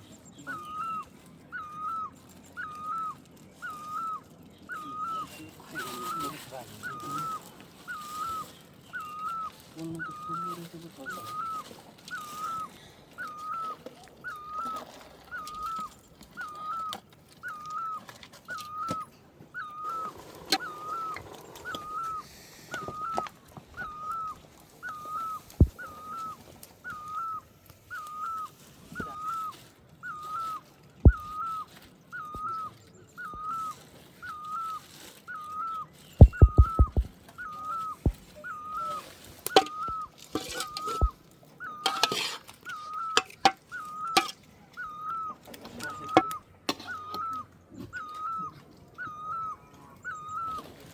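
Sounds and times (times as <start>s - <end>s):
bird whistled call: 0.4s - 19.0s, 19.6s - 42.1s, 42.7s - 50.7s
sharp clicks: 36.2s - 37.1s.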